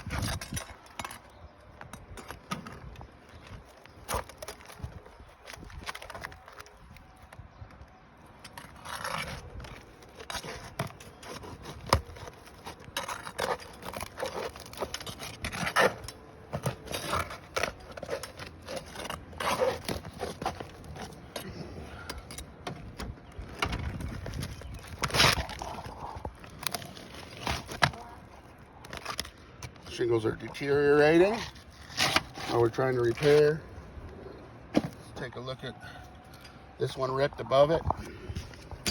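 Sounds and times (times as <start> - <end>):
roofing shingles scraping and cracking: 0.0 - 33.8.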